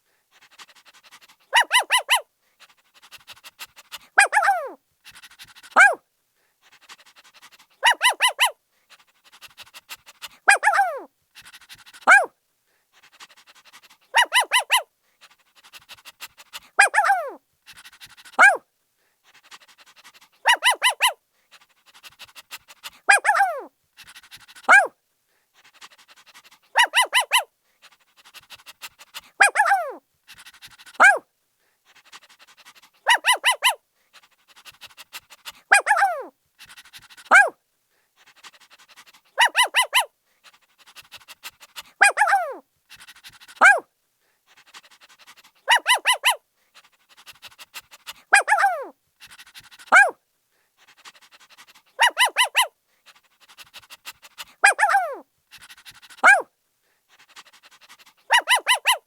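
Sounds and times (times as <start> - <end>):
puppy barking and yelping: 0.6 - 2.3, 3.0 - 6.0, 6.9 - 8.6, 9.4 - 12.3, 13.6 - 14.9, 16.7 - 18.6, 19.6 - 21.2, 22.0 - 25.0, 25.8 - 31.3, 32.3 - 37.6, 38.8 - 40.1, 40.9 - 43.9, 44.8 - 50.2, 51.1 - 56.5, 57.7 - 59.0.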